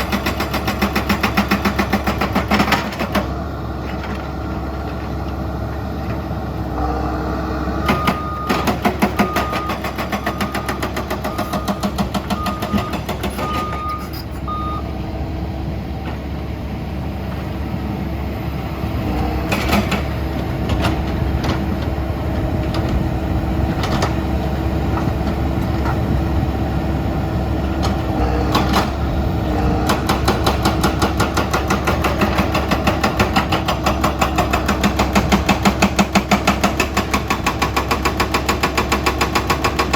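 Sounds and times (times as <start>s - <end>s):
excavator diesel engines running: 0.0s - 39.9s
travel alarm beeping: 7.8s - 14.9s.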